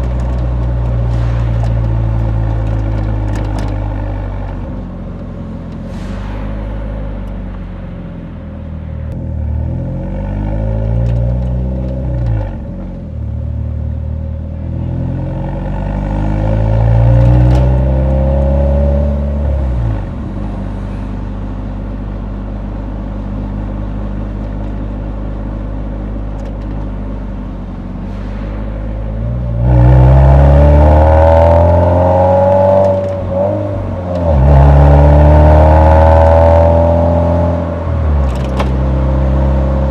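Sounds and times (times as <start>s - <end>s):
car engine exhaust revving: 27.7s - 39.9s.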